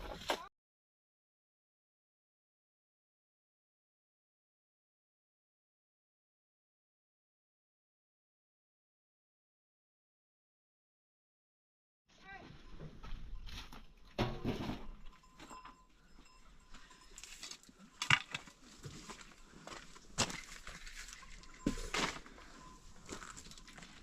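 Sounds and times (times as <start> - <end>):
knocks and rustles: 14.1 - 15.6.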